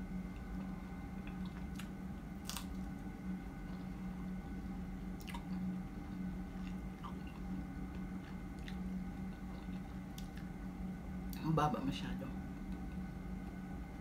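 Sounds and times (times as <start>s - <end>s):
steady low hum: 0.0s - 14.0s
chewing strawberries: 0.4s - 3.0s, 5.2s - 10.5s.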